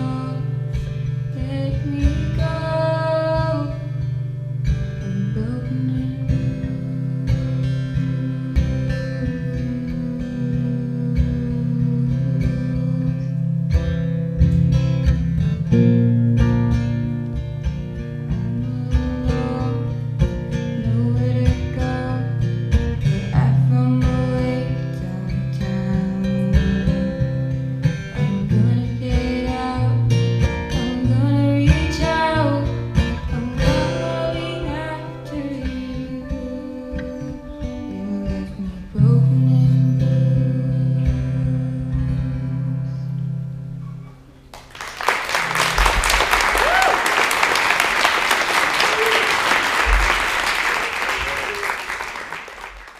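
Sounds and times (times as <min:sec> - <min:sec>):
woman singing: 0:00.0 - 0:04.1, 0:04.8 - 0:13.8, 0:18.1 - 0:43.3
strummed acoustic guitar: 0:00.0 - 0:44.5.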